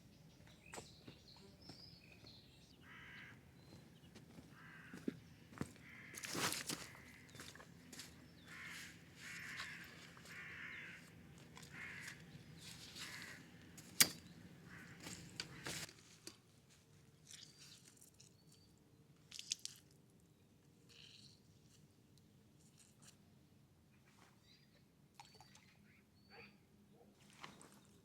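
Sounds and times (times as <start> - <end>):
crow cawing: 2.8 - 3.4, 4.5 - 7.6, 8.4 - 13.5, 14.6 - 15.9.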